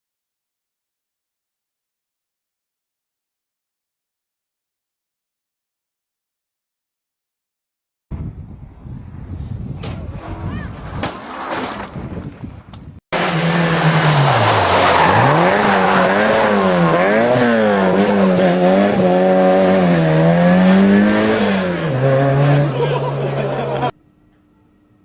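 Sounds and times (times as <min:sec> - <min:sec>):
road noise: 0:08.1 - 0:23.9
car engine revving: 0:13.2 - 0:23.9.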